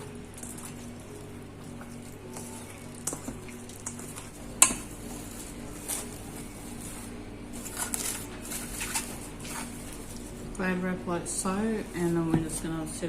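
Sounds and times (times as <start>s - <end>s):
utensil scraping mixing bowl: 0.0s - 10.4s.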